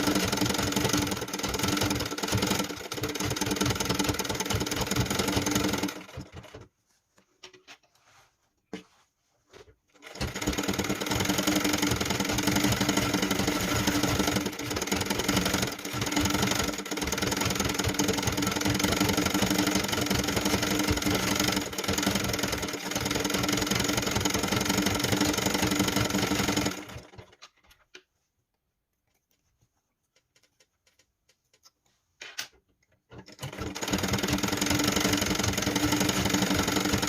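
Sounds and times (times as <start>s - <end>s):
sewing machine running fast: 0.0s - 6.3s, 10.0s - 27.2s, 33.3s - 37.0s.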